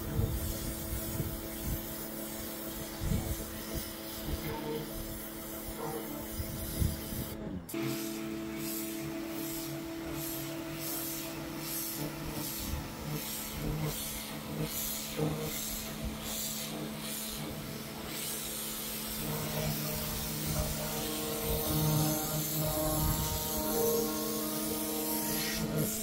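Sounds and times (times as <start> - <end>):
pressure washer motor hum: 0.0 - 26.0
water spray hissing on paving: 7.9 - 26.0.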